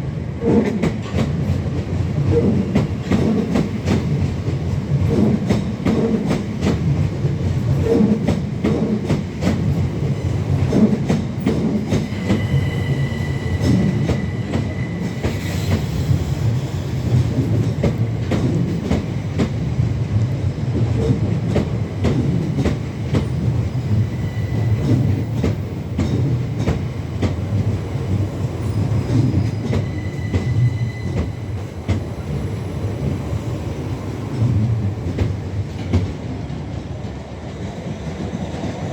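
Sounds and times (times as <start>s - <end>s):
train rumbling: 0.0s - 38.9s
high wheel squeal: 12.1s - 17.0s, 28.5s - 31.7s.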